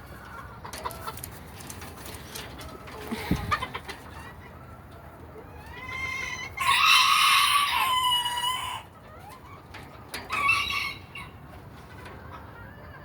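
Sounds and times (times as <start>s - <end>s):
rooster crowing: 6.0s - 8.9s.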